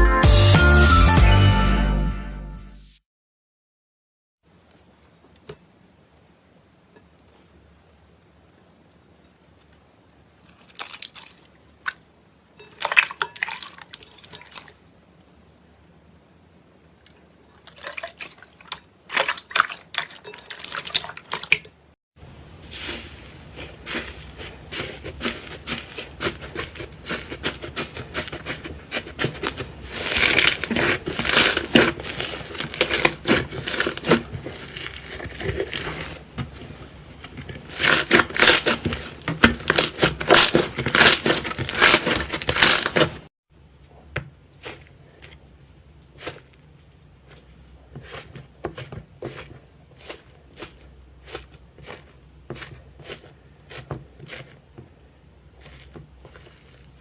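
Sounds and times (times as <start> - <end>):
slime squished by hand: 23.9 - 36.2.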